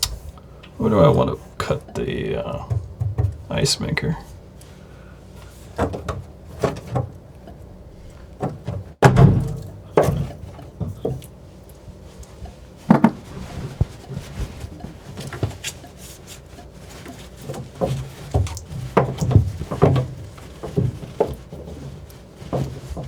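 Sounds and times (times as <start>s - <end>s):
knocks and clunks against wood: 1.6s - 3.9s, 5.7s - 11.4s, 12.4s - 23.0s.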